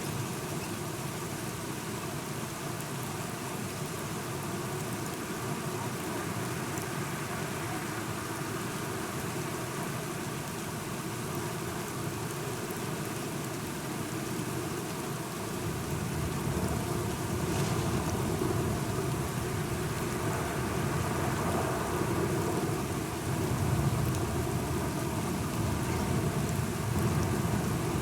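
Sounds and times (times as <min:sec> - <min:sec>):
steady rain: 0:00.0 - 0:28.0
thunder rumble: 0:16.0 - 0:28.0.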